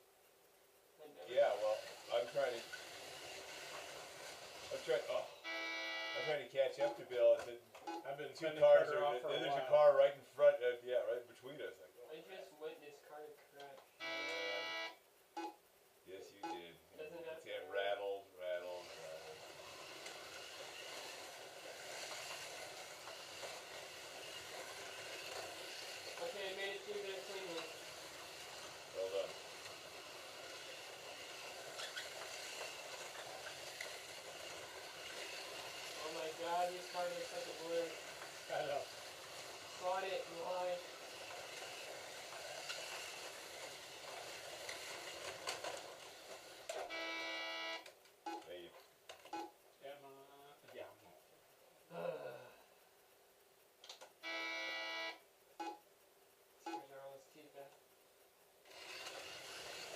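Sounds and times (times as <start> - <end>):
slot car motors whirring: 58.7 - 59.9.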